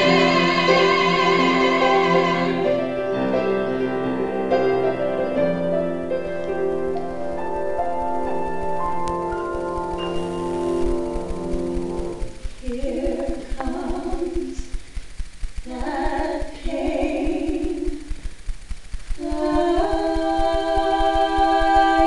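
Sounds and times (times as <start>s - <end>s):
person singing with vibrato: 0.0s - 3.0s, 12.1s - 14.9s, 15.6s - 18.4s, 19.2s - 22.0s
piano chords: 0.0s - 14.6s.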